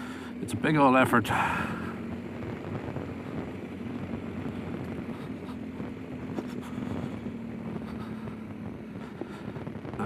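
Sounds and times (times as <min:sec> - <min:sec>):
motorcycle engine running: 0:00.0 - 0:10.0
wind noise on microphone: 0:02.4 - 0:10.0.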